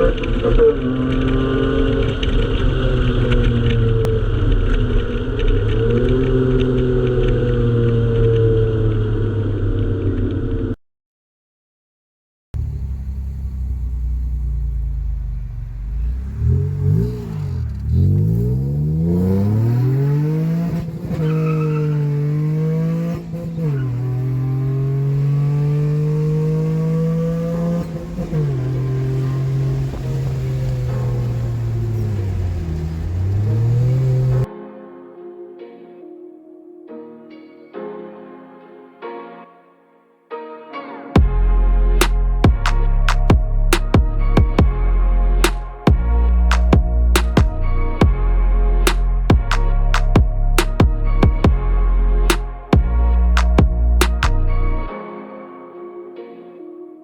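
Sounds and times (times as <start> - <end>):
car engine accelerating: 0.0 - 10.8, 12.6 - 34.5, 41.2 - 54.9
car engine running: 12.6 - 19.6, 24.6 - 34.5
low rumble: 42.3 - 54.9.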